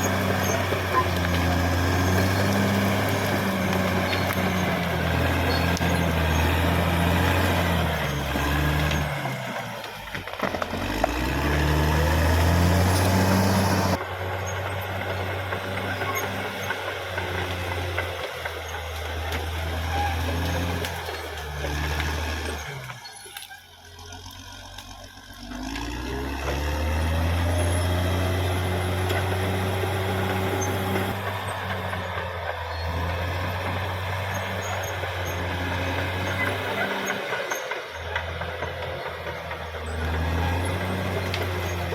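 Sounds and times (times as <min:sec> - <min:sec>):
bulldozer diesel engine revving: 0:00.0 - 0:41.9.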